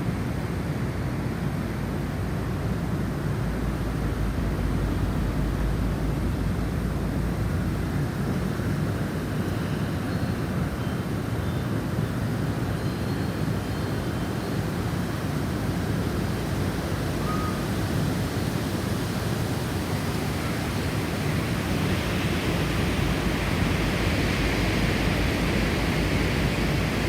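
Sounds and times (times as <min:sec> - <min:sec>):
gust hiss: 0:02.3 - 0:27.0
snowstorm wind blowing: 0:12.0 - 0:27.0.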